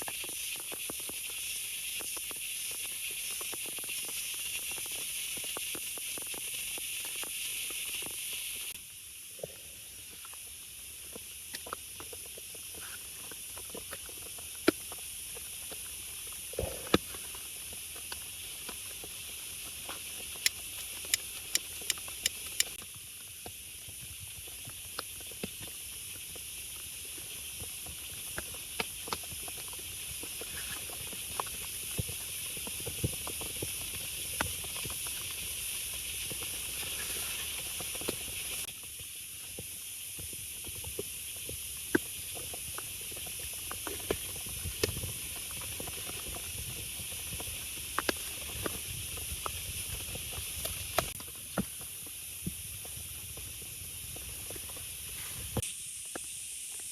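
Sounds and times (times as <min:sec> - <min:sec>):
sharp high clicks: 0:20.4 - 0:22.8.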